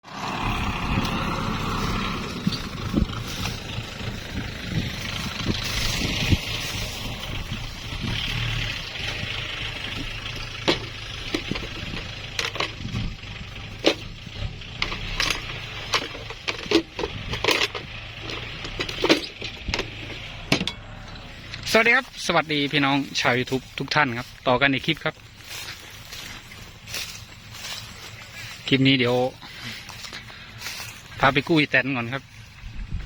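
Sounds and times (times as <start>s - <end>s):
tractor engine running: 0.0s - 33.0s
metallic knocks and clanks: 9.9s - 21.2s.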